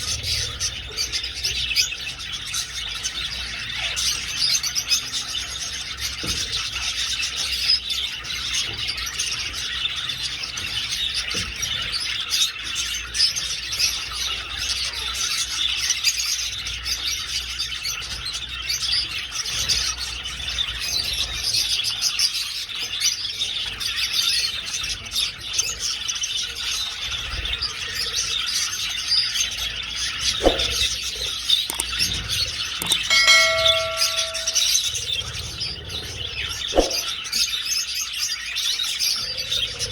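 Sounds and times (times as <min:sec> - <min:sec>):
brief ringing tone: 0:32.8 - 0:34.7.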